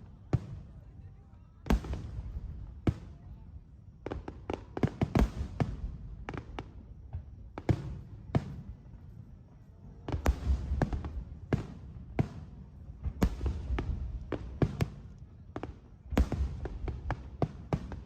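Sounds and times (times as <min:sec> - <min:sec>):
fireworks bursting with booms: 0:00.0 - 0:18.0.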